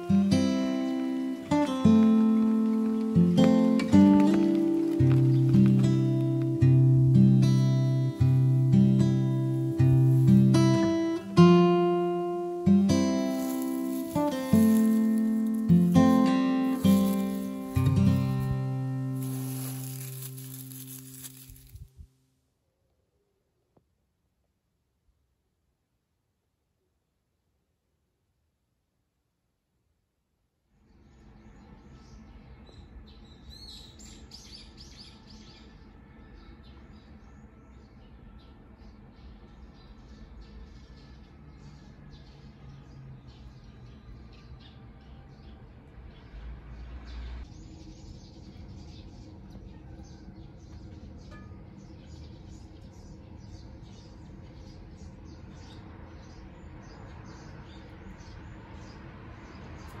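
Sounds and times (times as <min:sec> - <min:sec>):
small bird chirping: 0:00.0 - 0:22.0
low background noise: 0:00.0 - 1:00.0
low steady background noise: 0:00.0 - 1:00.0.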